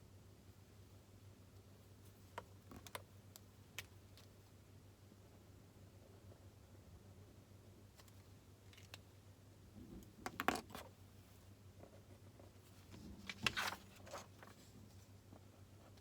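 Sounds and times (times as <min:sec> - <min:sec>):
low room hum: 0:00.0 - 0:16.0
rustling and clicks: 0:12.6 - 0:15.1.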